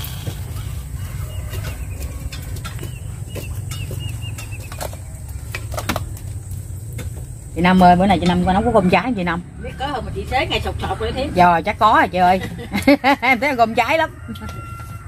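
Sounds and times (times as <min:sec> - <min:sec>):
small bird chirping: 0:00.6 - 0:05.5.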